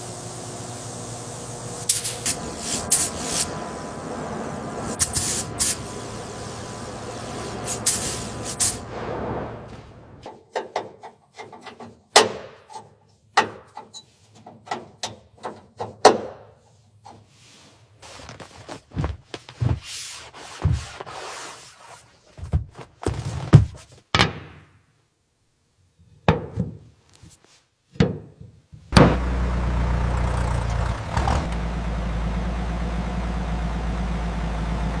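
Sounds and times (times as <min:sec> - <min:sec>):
car engine idling: 0:29.0 - 0:35.0.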